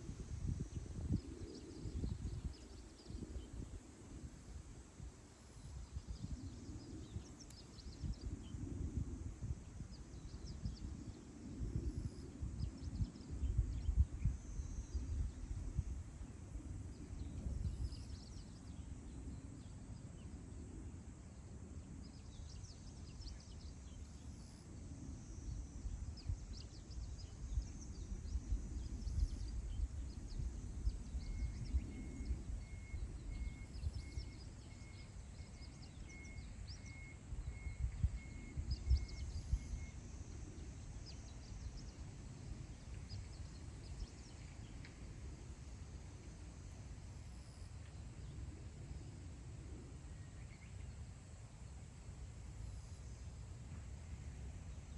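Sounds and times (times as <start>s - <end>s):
wind buffeting microphone: 0.0s - 19.4s, 25.8s - 34.6s.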